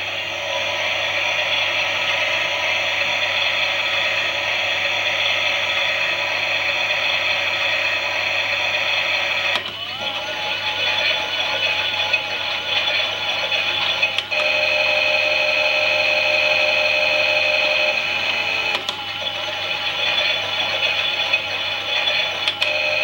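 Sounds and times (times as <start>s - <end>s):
toy washing machine whirring: 0.0s - 23.0s
click: 9.5s - 9.8s, 18.7s - 19.0s, 22.4s - 22.7s.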